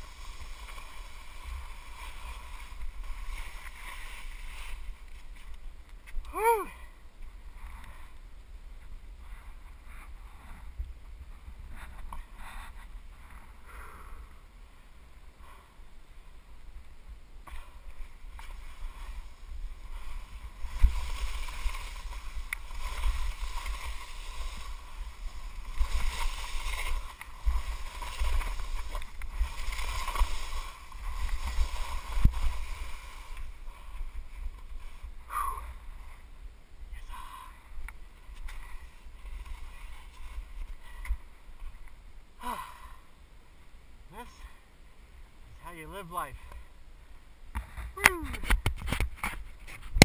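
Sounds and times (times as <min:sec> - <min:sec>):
skis scraping over snow: 0:00.0 - 0:06.2, 0:17.5 - 0:35.4, 0:38.2 - 0:41.8
wind rumbling on microphone: 0:00.0 - 0:42.4, 0:47.3 - 0:50.0.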